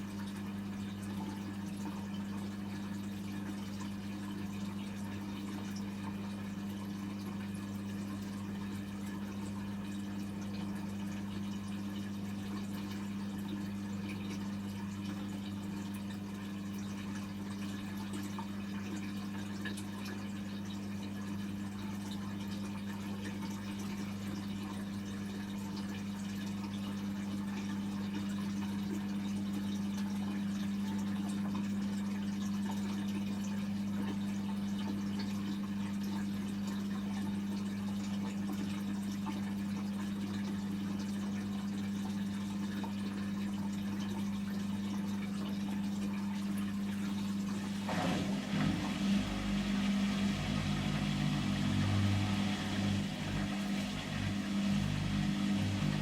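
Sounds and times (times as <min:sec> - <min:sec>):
drain pump humming: 0:00.0 - 0:56.0
water draining: 0:43.0 - 0:56.0
washing machine drum motor: 0:46.6 - 0:56.0.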